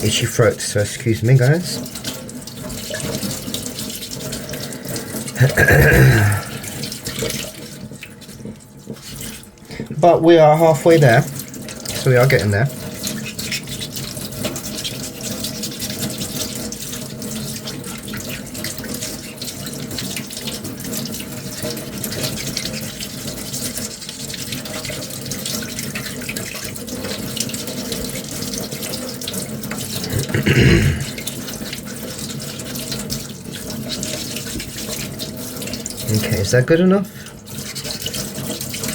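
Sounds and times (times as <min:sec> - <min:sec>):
running water hiss: 0:03.0 - 0:07.7.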